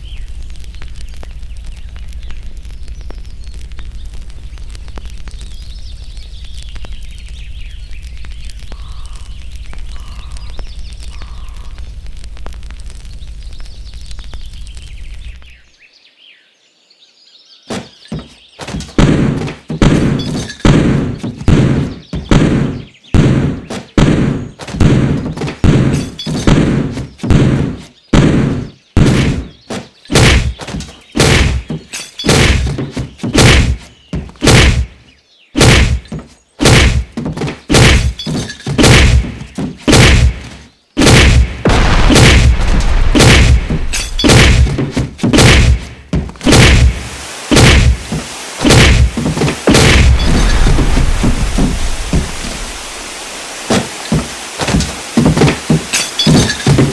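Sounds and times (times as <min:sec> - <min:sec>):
loud ringing thumps and bangs: 0:41.0 - 0:52.6
steady noise: 0:41.0 - 0:56.9.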